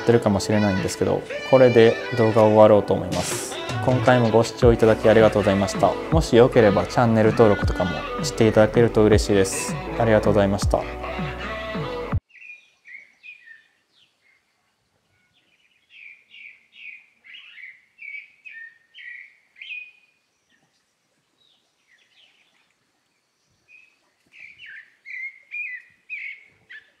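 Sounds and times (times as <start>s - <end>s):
small birds chirping: 12.2s - 27.0s.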